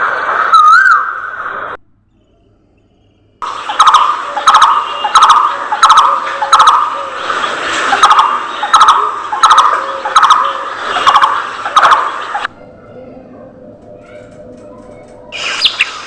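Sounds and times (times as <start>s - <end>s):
budgerigars chirping: 3.7s - 7.0s, 15.4s - 16.0s.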